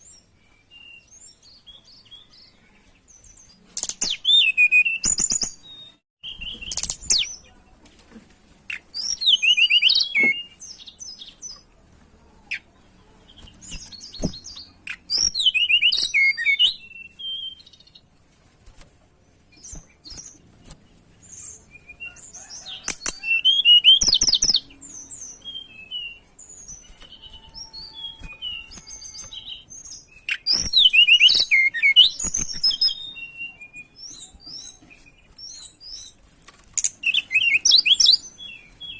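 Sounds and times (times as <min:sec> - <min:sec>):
short bird chirps and calls: 0:08.7 - 0:11.6, 0:21.2 - 0:36.2
flycatcher singing: 0:21.3 - 0:36.1.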